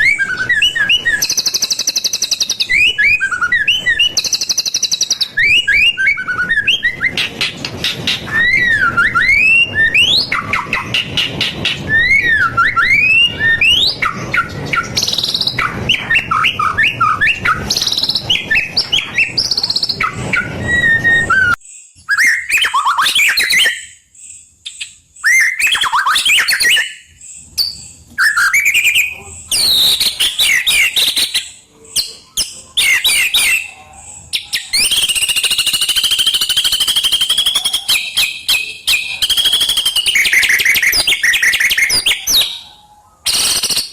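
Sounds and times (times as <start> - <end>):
background hiss: 0.0 - 25.6
songbird singing whistled phrases: 0.0 - 43.9.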